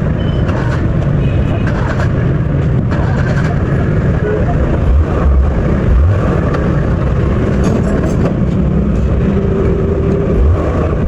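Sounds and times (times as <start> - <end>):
motor vehicle engine rumble: 0.0 - 11.0.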